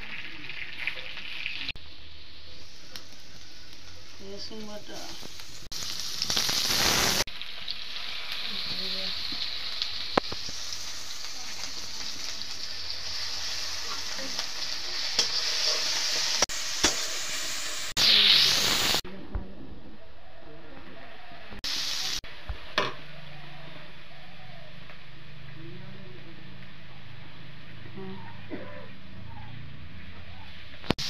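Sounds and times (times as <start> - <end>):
onions sizzling in hot oil: 0.0 - 19.0, 21.6 - 25.6, 30.0 - 31.0.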